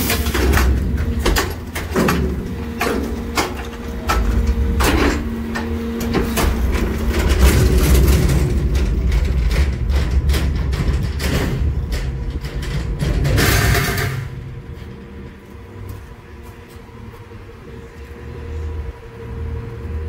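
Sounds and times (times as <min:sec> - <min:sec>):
clanks and knocks: 0:00.0 - 0:16.0
garbage truck diesel engine: 0:00.0 - 0:20.0
steady whine: 0:00.0 - 0:20.0.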